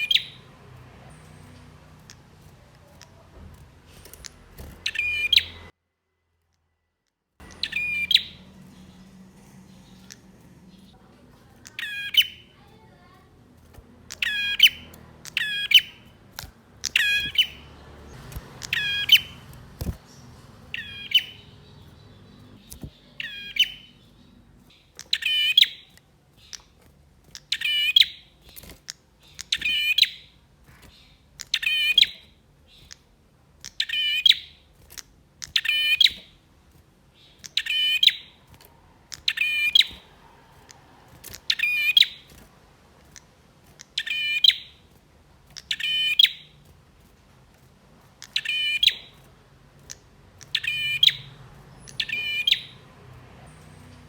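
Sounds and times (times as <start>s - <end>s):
prinia calling: 0.0s - 5.7s, 7.4s - 36.4s, 37.2s - 44.9s, 45.5s - 46.8s, 48.1s - 54.0s.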